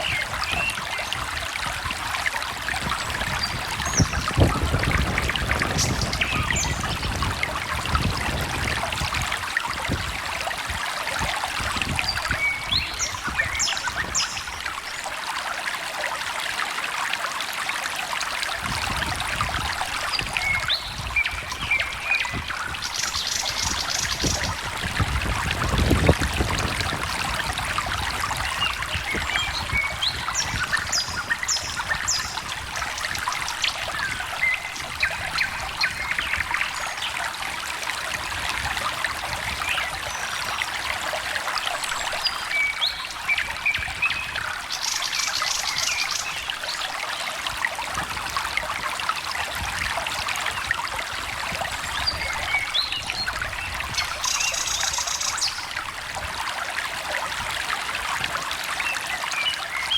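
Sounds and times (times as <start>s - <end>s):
birds singing: 0.0s - 1.3s, 2.8s - 7.6s, 11.8s - 15.0s, 20.1s - 24.7s, 28.4s - 37.2s, 41.7s - 47.3s, 51.7s - 55.8s, 58.8s - 59.9s
stream babbling over stones: 0.0s - 59.9s.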